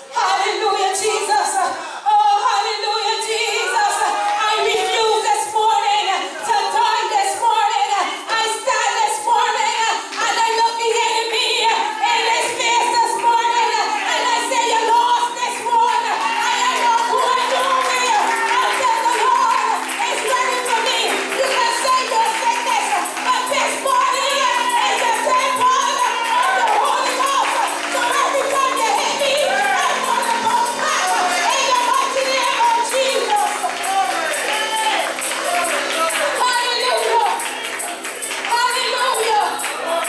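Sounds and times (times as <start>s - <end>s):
church singing: 2.4s - 40.0s
instrumental backing: 11.4s - 40.0s.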